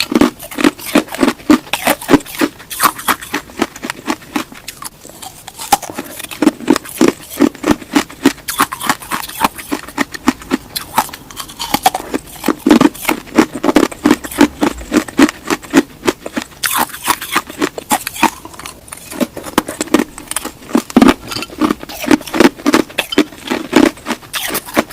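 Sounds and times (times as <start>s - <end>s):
crunching and chewing: 0.0s - 24.9s.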